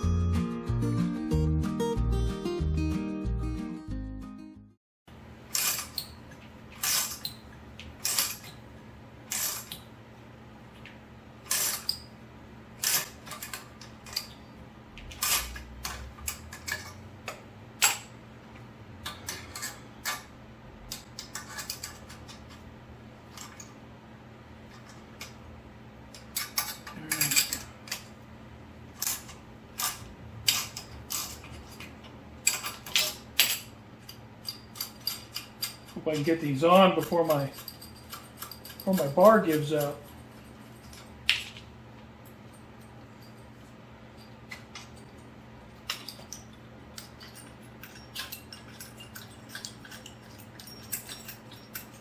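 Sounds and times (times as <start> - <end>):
steady low hum: 5.1 - 52.0
steel tools clinking: 12.8 - 18.1, 19.0 - 20.3, 26.1 - 28.2, 29.0 - 41.1, 45.8 - 52.0.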